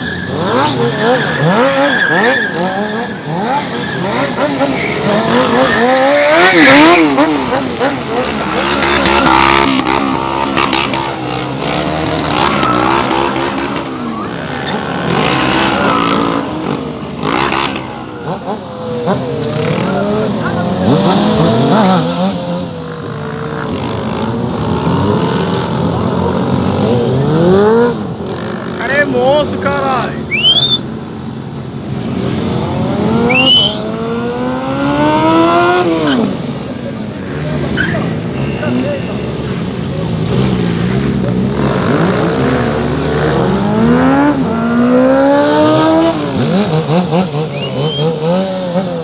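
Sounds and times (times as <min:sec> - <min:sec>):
motorcycle engines revving: 0:00.0 - 0:49.0
motorcycle engine accelerating: 0:39.6 - 0:49.0.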